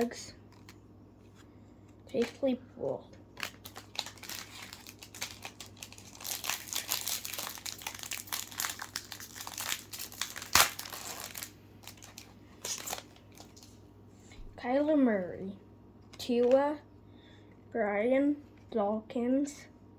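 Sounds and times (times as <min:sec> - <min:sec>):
plastic wrapper crinkling: 0:03.3 - 0:13.8.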